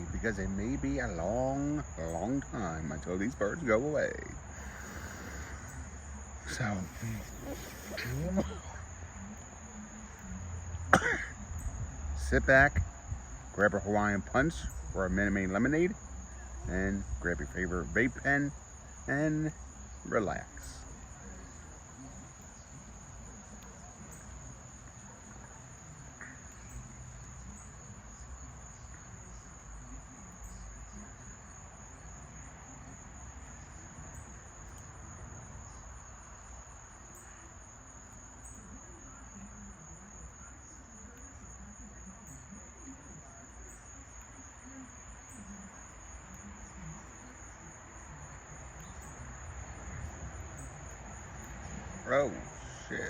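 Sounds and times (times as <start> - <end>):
faint low outdoor rumble: 0.0 - 53.0
high-pitched insect trill: 0.0 - 53.0.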